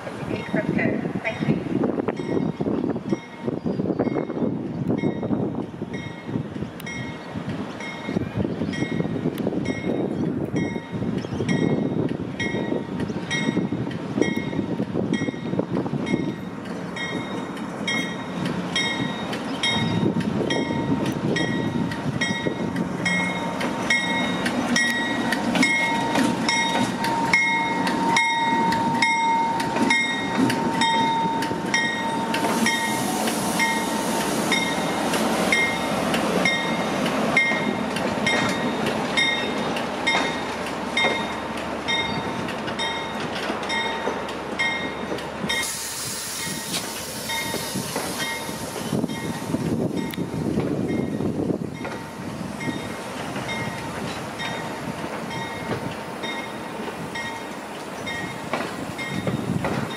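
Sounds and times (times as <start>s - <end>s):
diesel locomotive rumbling past: 0.0s - 59.9s
hiss: 32.4s - 34.9s, 45.5s - 49.7s.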